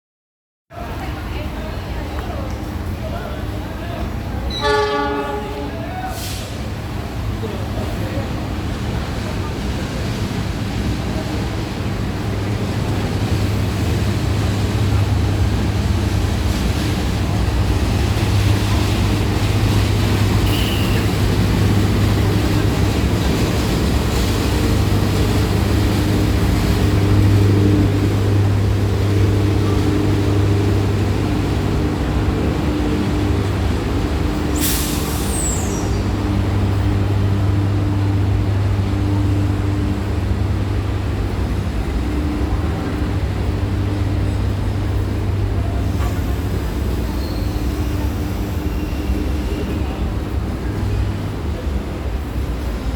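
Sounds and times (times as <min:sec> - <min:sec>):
diesel locomotive engine drone: 0:00.8 - 0:52.9
air brakes hissing: 0:06.0 - 0:06.7, 0:34.5 - 0:36.2.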